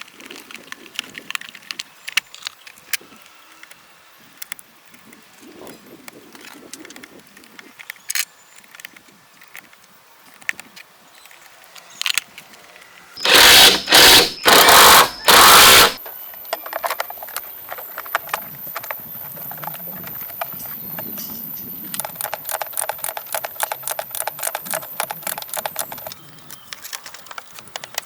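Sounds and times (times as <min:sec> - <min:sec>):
power tool bursts: 0:13.2 - 0:16.0
tools clicking and knocking: 0:13.2 - 0:20.6, 0:21.9 - 0:26.2.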